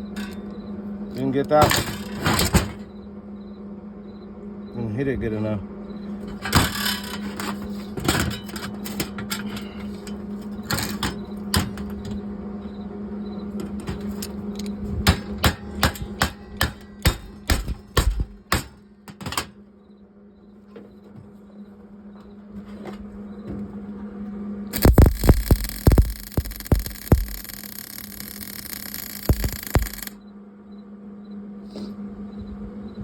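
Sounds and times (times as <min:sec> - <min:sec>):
hammer striking sheet metal: 0:15.1 - 0:18.8
low hum: 0:24.8 - 0:30.2.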